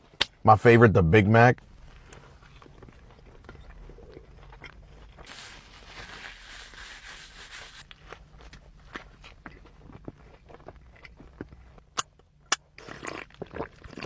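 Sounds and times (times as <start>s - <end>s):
crackly wrapper rustle: 5.1s - 9.7s.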